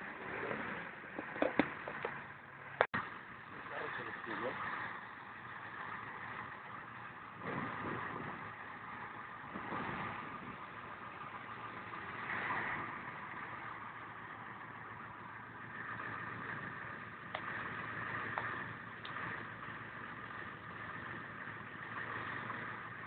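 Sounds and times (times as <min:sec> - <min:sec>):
car engines running: 0:00.0 - 0:23.0
vehicles passing: 0:00.0 - 0:23.0.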